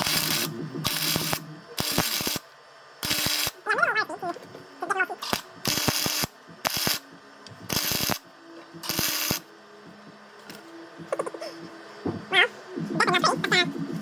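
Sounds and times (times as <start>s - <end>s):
welding arc crackling: 0.0s - 9.5s
faint steady hum: 0.0s - 14.0s.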